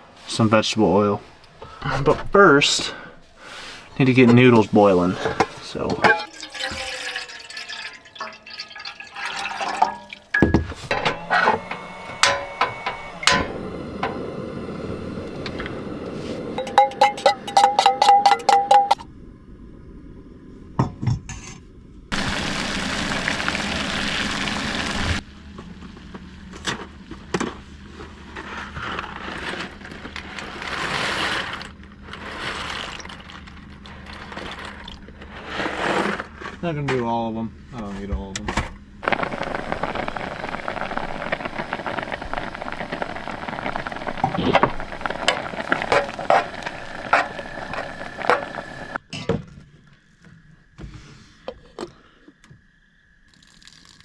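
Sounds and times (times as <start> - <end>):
cookware and utensils clinking: 5.2 - 11.2, 16.6 - 19.0.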